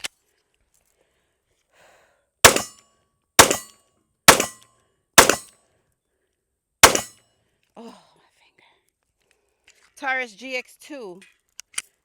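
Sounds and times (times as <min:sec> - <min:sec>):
pistol shots: 0:02.4 - 0:02.8, 0:03.4 - 0:03.7, 0:04.3 - 0:04.6, 0:05.2 - 0:05.5, 0:06.8 - 0:07.2.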